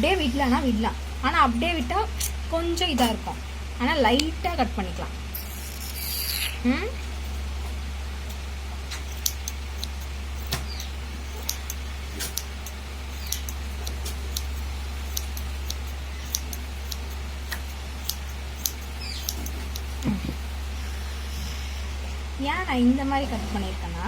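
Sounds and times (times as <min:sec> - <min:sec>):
steady low hum: 0:00.0 - 0:24.0
scissors snipping yarn: 0:08.9 - 0:20.4.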